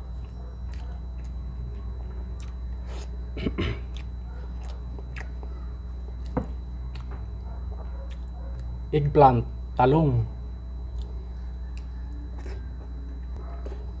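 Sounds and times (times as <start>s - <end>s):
steady low hum: 0.0s - 14.0s
person chewing food: 0.1s - 1.4s, 2.0s - 8.7s, 10.9s - 14.0s.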